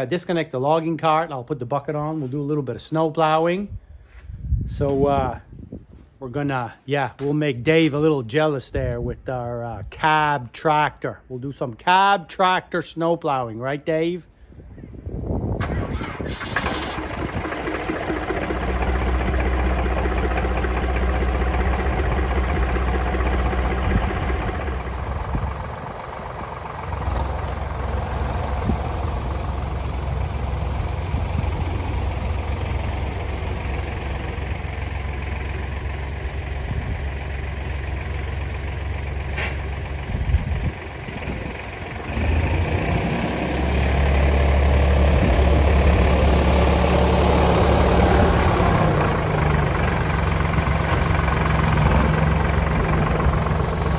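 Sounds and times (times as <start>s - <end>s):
tractor diesel engine running: 15.6s - 53.9s.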